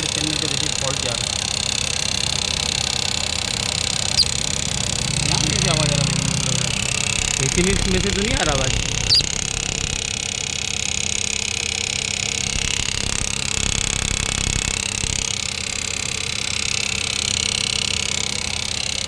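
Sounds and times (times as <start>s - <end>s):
car engine idling: 0.0s - 19.0s
high wavering chirping squeal: 4.1s - 4.5s, 8.8s - 9.8s.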